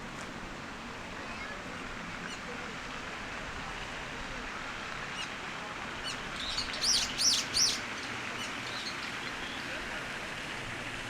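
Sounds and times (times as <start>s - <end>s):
outdoor ambient hiss: 0.0s - 11.0s
songbird chirping: 6.0s - 9.7s.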